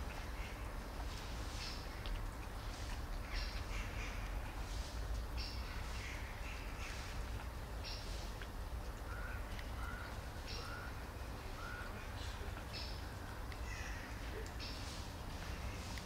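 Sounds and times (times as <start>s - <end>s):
harsh bird calls: 9.0s - 16.0s.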